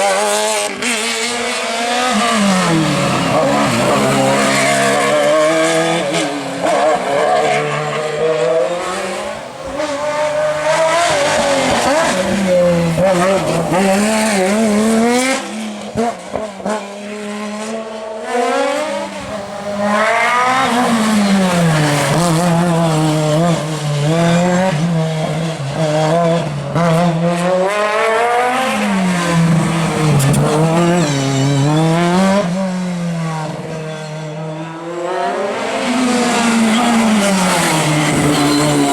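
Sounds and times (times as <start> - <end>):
racing car engines revving: 0.0 - 38.9.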